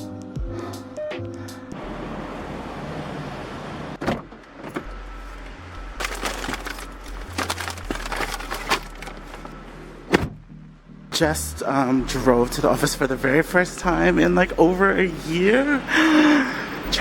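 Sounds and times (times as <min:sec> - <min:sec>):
car road noise: 0:01.7 - 0:10.8.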